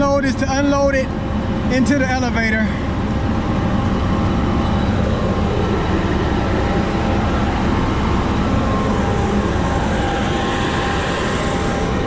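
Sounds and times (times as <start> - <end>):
faint steady whine: 0.0 - 12.0
grain machinery rumbling: 0.0 - 12.0.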